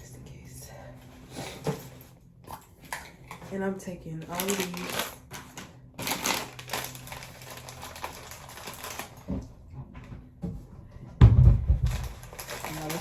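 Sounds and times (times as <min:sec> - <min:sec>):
small items clicking and rattling: 0:04.2 - 0:09.2, 0:11.9 - 0:13.0.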